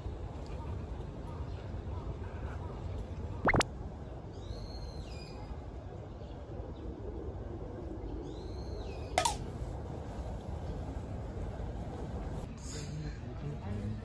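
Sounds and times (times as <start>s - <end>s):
sharp click: 9.2s - 9.4s.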